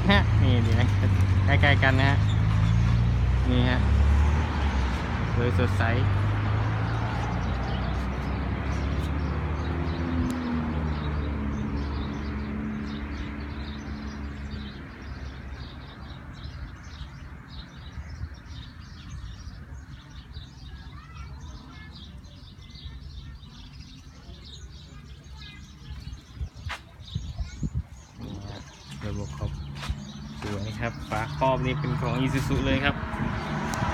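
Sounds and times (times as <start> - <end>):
small birds chirping: 0.0 - 33.9
vehicle engine humming: 28.2 - 33.9.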